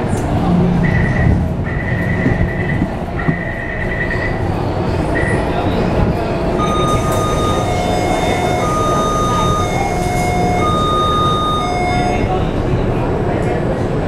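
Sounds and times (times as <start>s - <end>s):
train rumbling on rails: 0.0s - 14.0s
steady high whining tones: 6.4s - 12.6s
high-pitched squeal: 6.6s - 12.4s.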